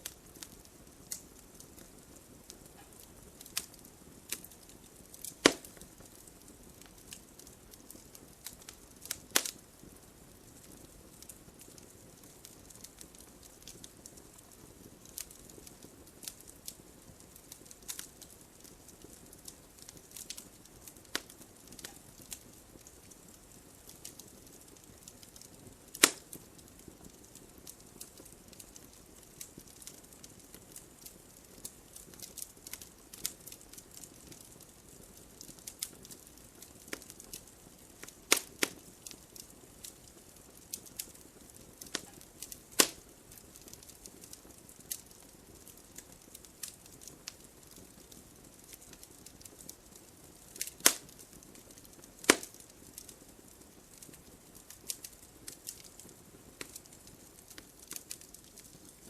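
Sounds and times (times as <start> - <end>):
soft steady hiss: 0.0 - 59.0
wood fire crackling: 0.0 - 59.0.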